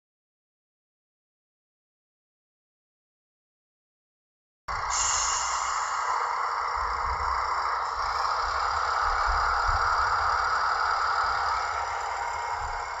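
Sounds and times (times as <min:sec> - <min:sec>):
model train wheels rattling on rails: 0:04.7 - 0:13.0.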